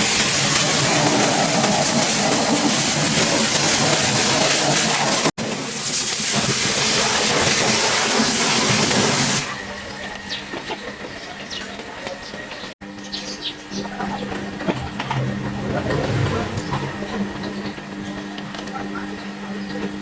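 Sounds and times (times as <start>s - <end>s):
pressure washer spraying: 0.0s - 9.6s.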